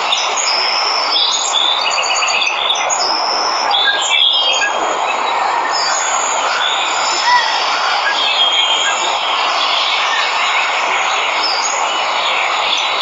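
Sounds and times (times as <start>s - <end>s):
birds chirping: 0.0s - 13.0s
waterfall rushing: 2.8s - 13.0s.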